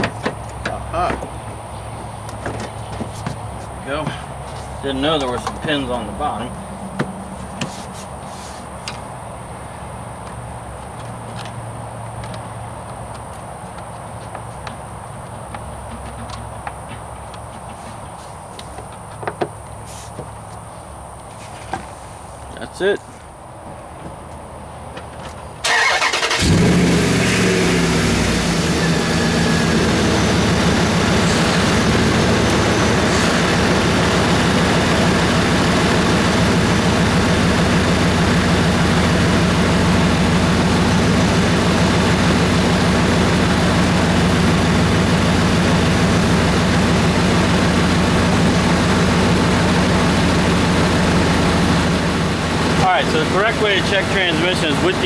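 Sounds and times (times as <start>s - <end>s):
engine idling: 25.6s - 55.0s
starter motor cranking: 25.6s - 55.0s.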